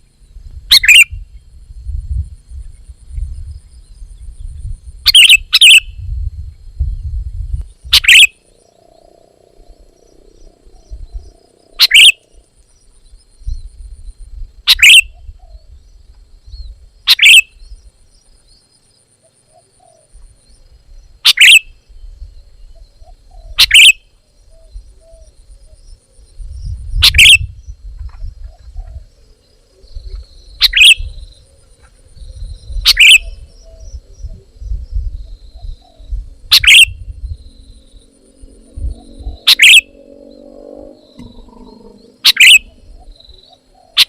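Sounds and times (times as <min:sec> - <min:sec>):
bird giving sharp calls: 0:00.7 - 0:01.1, 0:05.0 - 0:05.9, 0:07.9 - 0:09.3, 0:11.7 - 0:12.4, 0:14.7 - 0:15.2, 0:17.1 - 0:17.5, 0:21.2 - 0:21.7, 0:23.6 - 0:24.0, 0:27.0 - 0:27.4, 0:30.6 - 0:31.1, 0:32.8 - 0:33.8, 0:36.5 - 0:36.9, 0:37.7 - 0:44.0
low rumble: 0:05.9 - 0:14.6, 0:32.1 - 0:43.7.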